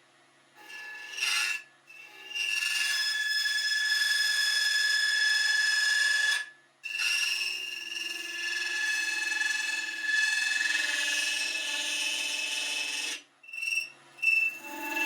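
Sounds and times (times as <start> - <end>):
lathe tool squealing on brass: 0.6 - 15.0.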